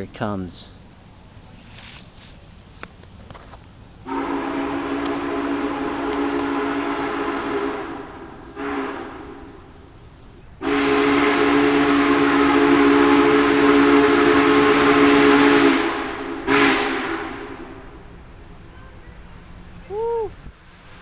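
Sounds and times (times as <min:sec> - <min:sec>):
steam whistle blasts: 0:04.1 - 0:09.7, 0:10.6 - 0:17.9.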